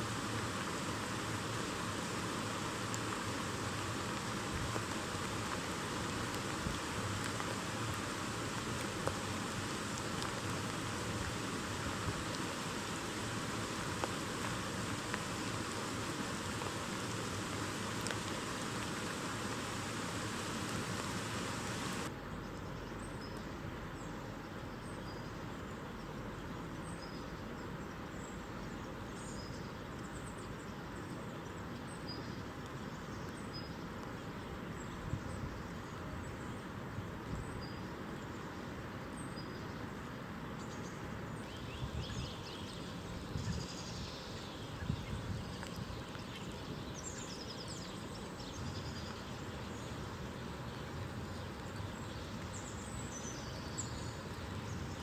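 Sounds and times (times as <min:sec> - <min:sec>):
outdoor hiss: 0:00.0 - 0:22.2, 0:28.1 - 0:55.0
songbirds calling: 0:12.2 - 0:39.9, 0:40.6 - 0:55.0.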